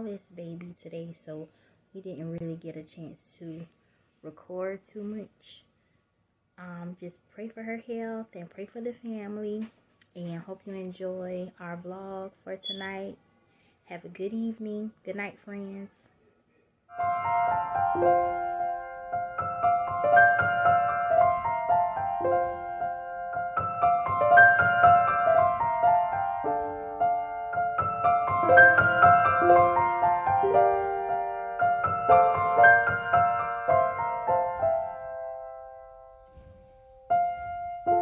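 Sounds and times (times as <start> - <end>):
gentle piano melody: 16.9 - 38.0.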